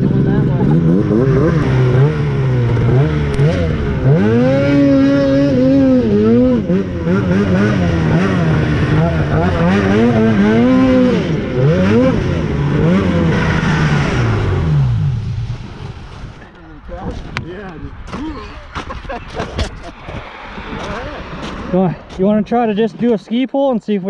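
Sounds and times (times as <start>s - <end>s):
snowmobile engine revving: 0.0s - 16.0s.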